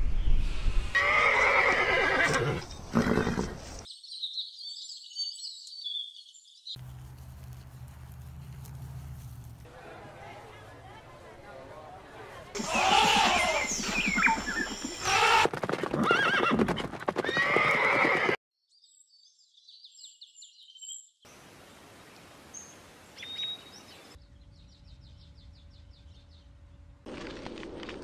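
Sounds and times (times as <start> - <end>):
horse neighing: 1.0 - 3.8, 12.6 - 18.4
hooves clopping: 6.8 - 9.8, 12.5 - 18.4
steady low hum: 24.2 - 27.1.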